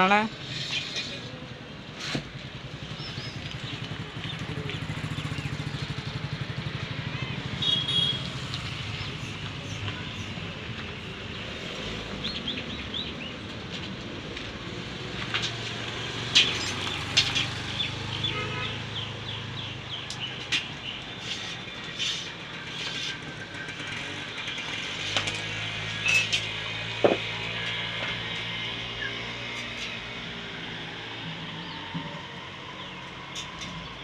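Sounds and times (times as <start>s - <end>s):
small birds chirping: 16.6s - 23.2s.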